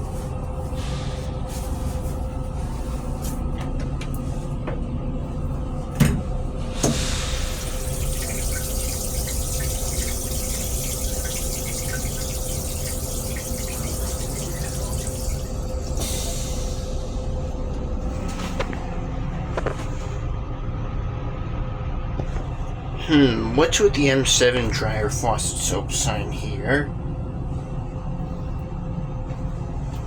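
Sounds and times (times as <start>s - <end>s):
railcar rumble and hum: 0.0s - 9.0s, 15.1s - 30.0s
water running in a sink: 5.4s - 18.2s.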